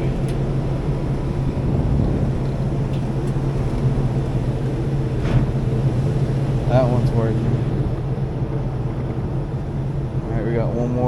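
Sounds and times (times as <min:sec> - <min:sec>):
exhaust fan humming: 0:00.0 - 0:11.0.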